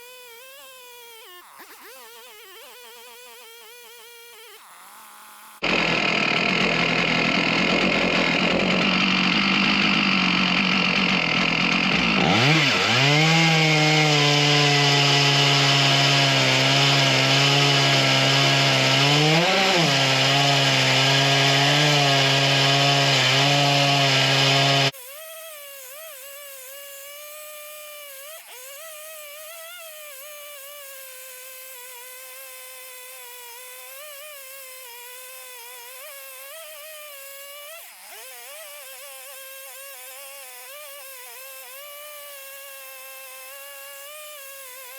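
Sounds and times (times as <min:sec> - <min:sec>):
chainsaw cutting log: 0:00.0 - 0:44.9.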